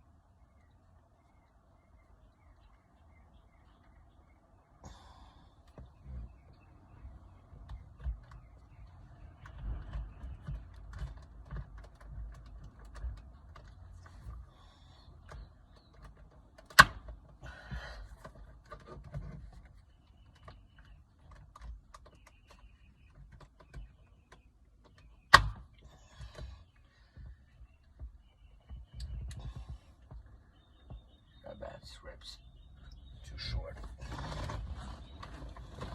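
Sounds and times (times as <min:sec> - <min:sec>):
rubbing and rustling: 0:18.1 - 0:24.3, 0:33.8 - 0:35.9.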